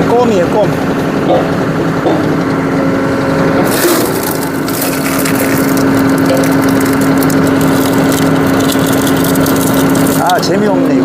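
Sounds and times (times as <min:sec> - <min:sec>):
tractor engine running: 0:00.0 - 0:11.0
scattered crackles: 0:03.7 - 0:10.5.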